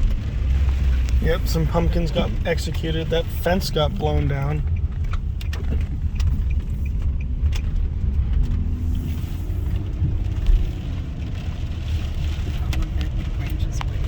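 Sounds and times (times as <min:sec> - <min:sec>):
car engine and tyres rumbling: 0:00.0 - 0:14.0
light clicks and rattles: 0:02.4 - 0:09.0.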